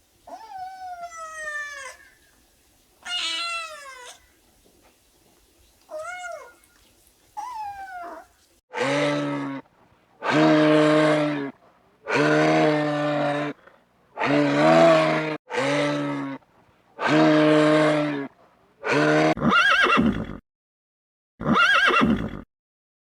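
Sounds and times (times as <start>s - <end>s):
cat meowing: 0.3s - 2.2s, 3.0s - 4.4s, 5.9s - 6.8s, 7.4s - 8.3s
cow mooing: 14.2s - 16.4s.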